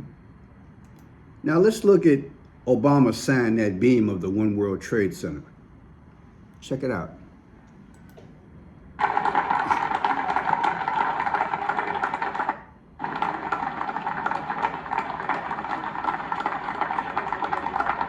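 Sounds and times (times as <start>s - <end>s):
dense rapid clicking: 9.0s - 18.0s.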